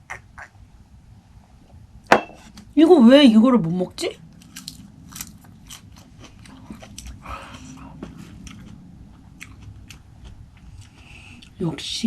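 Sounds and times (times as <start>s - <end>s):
person chewing raw fish: 4.4s - 11.6s.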